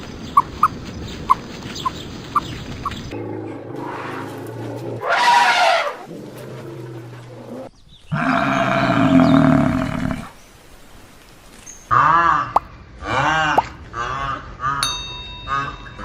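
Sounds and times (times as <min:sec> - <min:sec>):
animal calls: 0:00.3 - 0:10.4.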